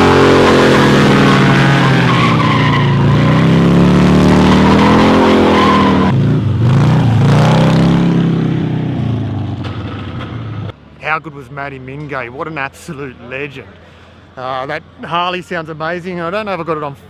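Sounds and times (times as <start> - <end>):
tyres squealing in a skid: 0.0 - 6.2
car engine revving hard: 0.0 - 9.4.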